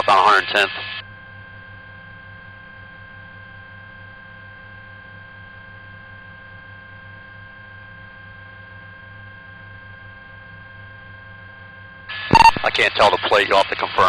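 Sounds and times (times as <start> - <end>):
electrical hum and hiss of radio feed: 0.0 - 1.0, 12.1 - 14.0
faint steady high tones: 12.3 - 13.2.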